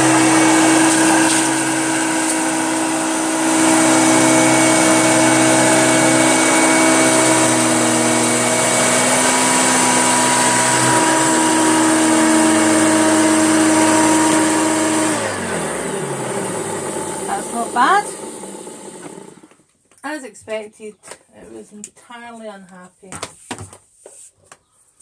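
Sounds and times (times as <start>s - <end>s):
upright vacuum cleaner running: 0.0s - 19.6s
vacuum motor winding down: 0.0s - 19.6s.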